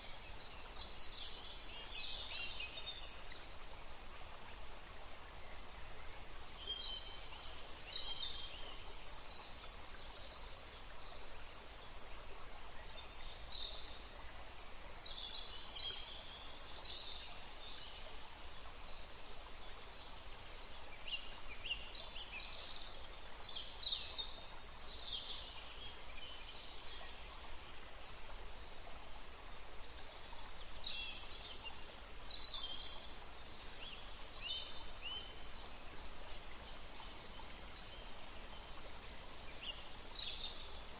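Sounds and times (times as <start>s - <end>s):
steady background hiss: 0.0s - 40.9s.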